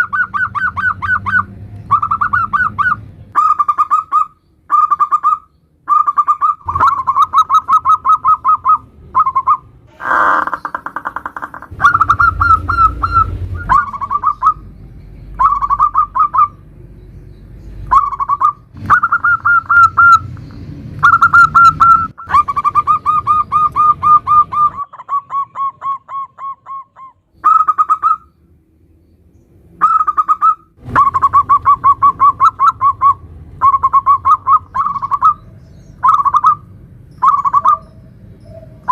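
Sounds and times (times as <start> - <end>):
doves cooing: 0.0 - 14.7, 15.4 - 16.6, 17.9 - 20.3, 29.8 - 38.9.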